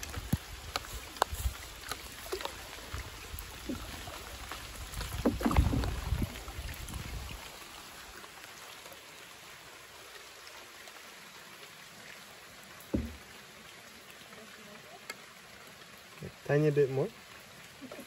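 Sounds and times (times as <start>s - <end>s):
light rain on water: 0.0s - 18.0s
knock on wooden canoe: 12.9s - 13.3s.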